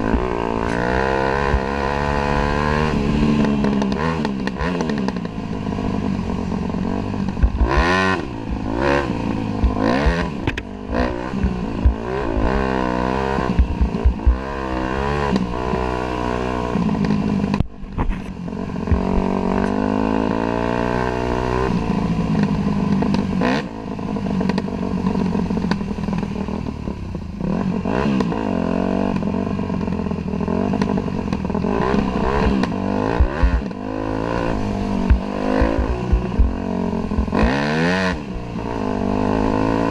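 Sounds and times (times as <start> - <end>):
dirt bike engine revving: 0.0 - 26.5, 27.4 - 39.9.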